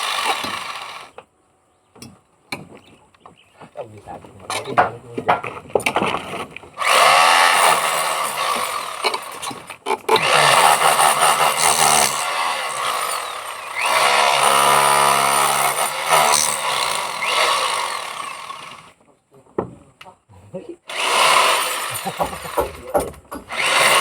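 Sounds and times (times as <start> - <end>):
electric hammer drill running: 0.0 - 1.2, 6.8 - 9.4, 10.2 - 18.9, 20.9 - 22.8, 23.5 - 24.0.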